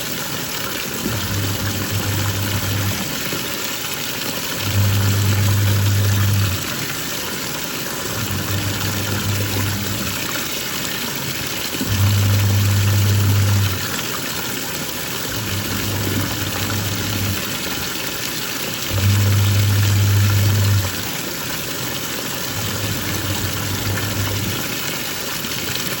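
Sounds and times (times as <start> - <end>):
water and clothes swishing: 0.0 - 26.0
washing machine motor humming: 0.7 - 26.0.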